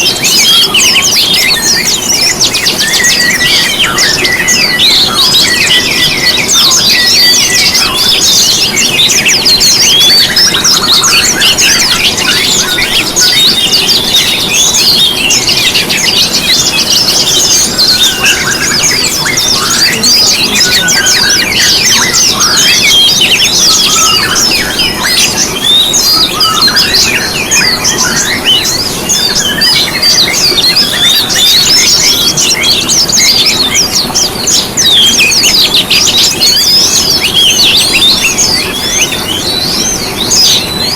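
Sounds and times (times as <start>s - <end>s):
songbirds chirping and twittering: 0.0s - 40.9s.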